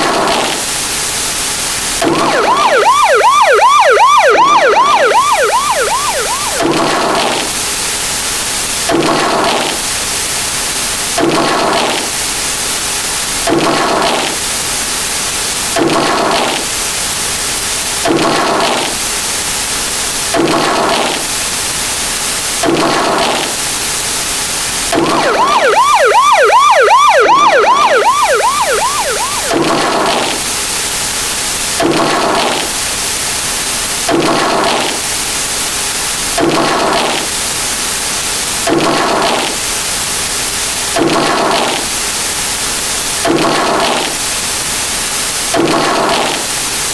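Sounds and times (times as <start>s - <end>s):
repeating sound effect: 2.0s - 7.5s, 24.9s - 30.4s
fast-warbling siren-like tone: 2.0s - 7.6s, 24.9s - 30.6s.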